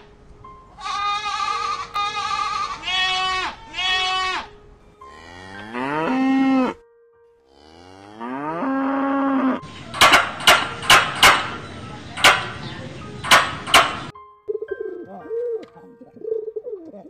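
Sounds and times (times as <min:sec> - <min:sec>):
goat bleating: 0:00.8 - 0:04.5
cattle mooing: 0:05.1 - 0:06.8, 0:07.5 - 0:14.1
sharp knocks: 0:09.6 - 0:14.1.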